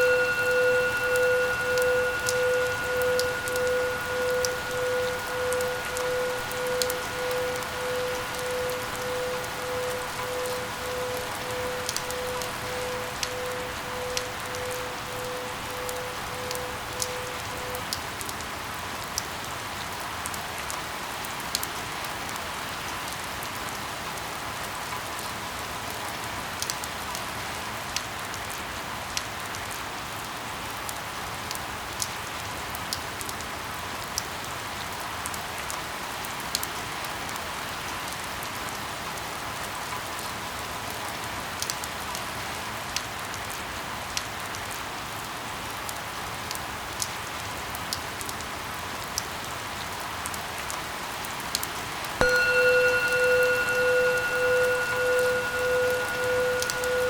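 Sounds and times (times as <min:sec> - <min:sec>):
faint pulsing tone: 0:00.0 - 0:17.9, 0:52.2 - 0:57.0
rain falling: 0:00.0 - 0:57.0.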